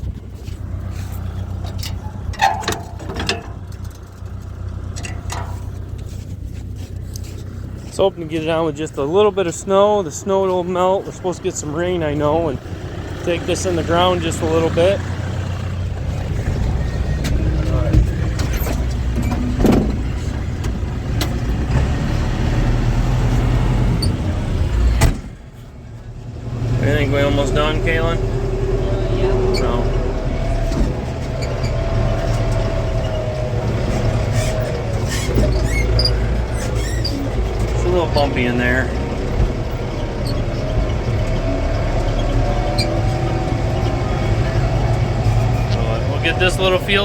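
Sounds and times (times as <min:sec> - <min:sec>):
tractor engine running: 0:00.0 - 0:47.0
sharp knocks and rattles: 0:01.1 - 0:07.6, 0:14.9 - 0:21.9
sharp rattles: 0:01.2 - 0:07.8.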